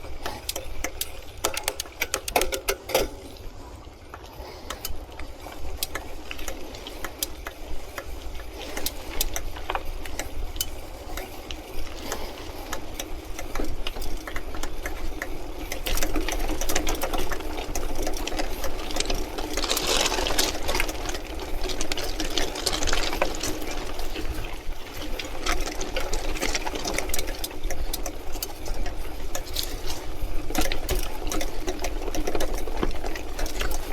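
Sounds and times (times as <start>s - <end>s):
bike frame rattling: 4.8s - 33.9s
tyres crunching on gravel: 18.0s - 27.2s.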